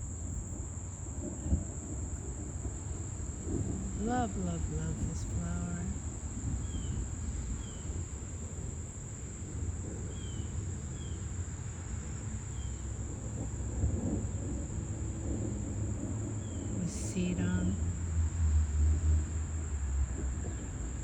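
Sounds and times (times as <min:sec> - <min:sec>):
high-pitched insect chorus: 0:00.0 - 0:11.4
low rumbling noise: 0:00.0 - 0:11.4, 0:12.0 - 0:21.0.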